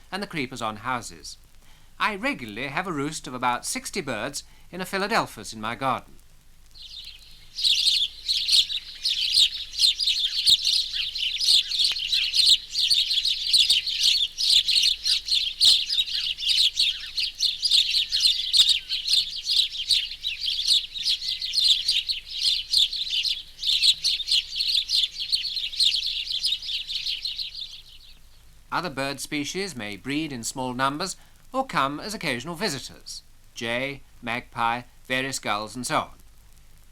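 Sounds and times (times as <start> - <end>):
sparrows chirping: 6.7 - 35.5.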